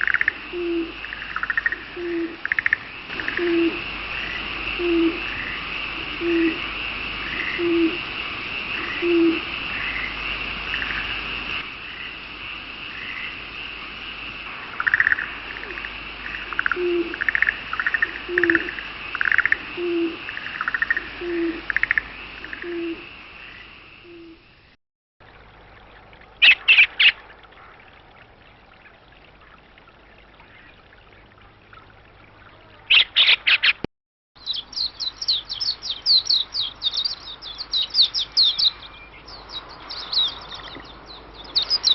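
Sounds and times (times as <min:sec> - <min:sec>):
owl-like hoots: 0:00.0 - 0:03.8, 0:04.8 - 0:06.7, 0:07.3 - 0:08.0, 0:08.8 - 0:09.5, 0:14.8 - 0:23.1, 0:24.0 - 0:24.4
high bird chirps: 0:32.9 - 0:33.8, 0:34.4 - 0:41.9.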